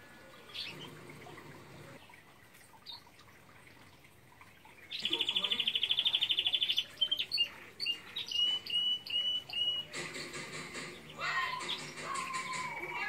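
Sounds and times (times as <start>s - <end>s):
songbird trilling and whistling: 5.0s - 9.9s.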